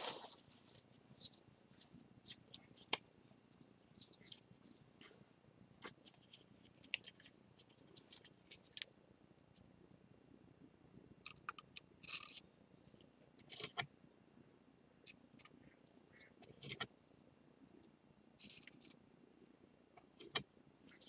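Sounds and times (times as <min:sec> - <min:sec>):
rustle: 0:00.0 - 0:02.6
small clicks and scrapes on ceramic: 0:04.0 - 0:05.2, 0:05.8 - 0:08.9, 0:11.3 - 0:12.5, 0:13.4 - 0:13.9, 0:15.1 - 0:16.9, 0:18.4 - 0:19.0, 0:20.0 - 0:21.0.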